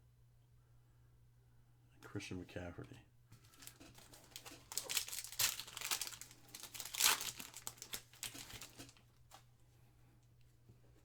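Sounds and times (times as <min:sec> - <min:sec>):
plastic wrapper crinkling: 0:03.4 - 0:09.4.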